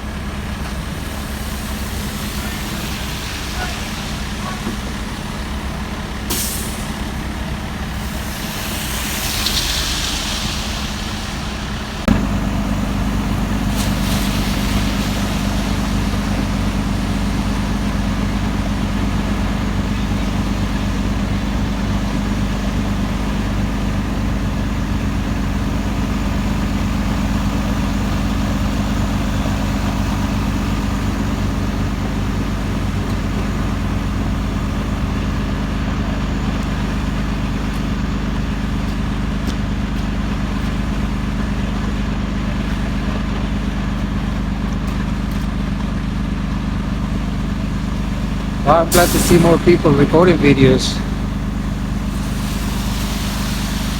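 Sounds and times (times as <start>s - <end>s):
heavy truck engine running: 0.0s - 53.9s
air hisses: 48.9s - 49.7s.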